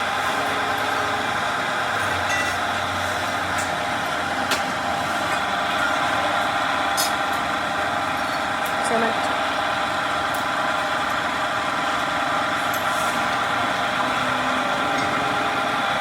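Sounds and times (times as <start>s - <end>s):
machinery running: 0.0s - 16.0s.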